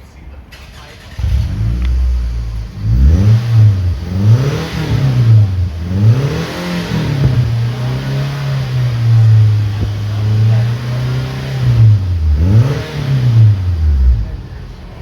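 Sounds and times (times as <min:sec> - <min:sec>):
car engine revving: 0:00.6 - 0:15.0.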